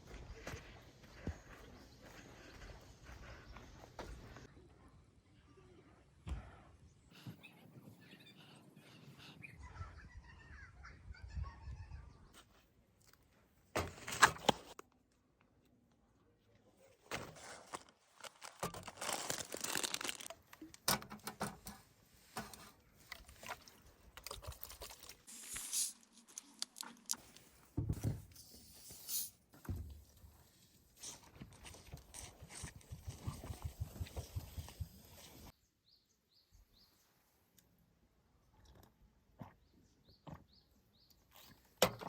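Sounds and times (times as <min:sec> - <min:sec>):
material crinkling and rustling: 0:17.0 - 0:20.9, 0:24.6 - 0:27.6.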